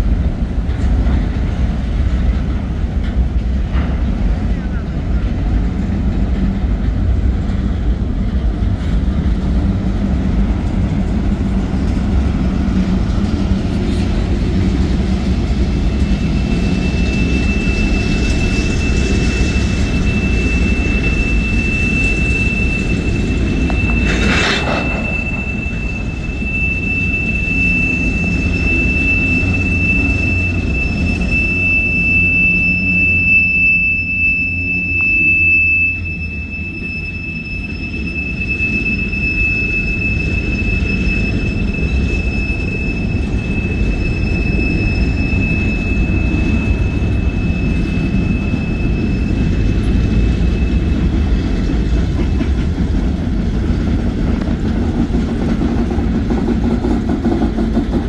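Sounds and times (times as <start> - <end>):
steel wheels rumbling on rail: 0.0 - 58.0
high-pitched wheel squeal: 15.3 - 54.1.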